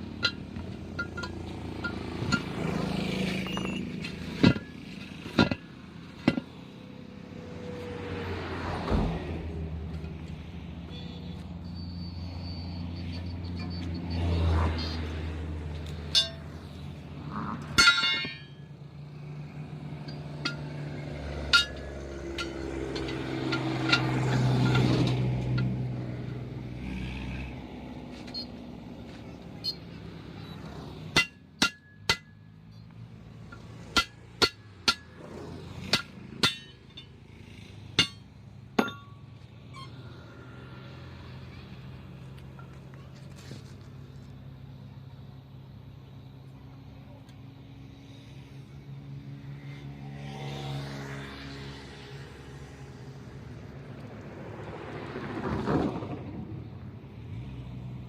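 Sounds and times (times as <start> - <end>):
hammer striking steel: 0.2 - 2.7, 16.1 - 16.7, 17.7 - 18.7, 20.0 - 25.8, 31.1 - 32.4, 33.5 - 35.2, 35.8 - 37.2, 37.9 - 39.2.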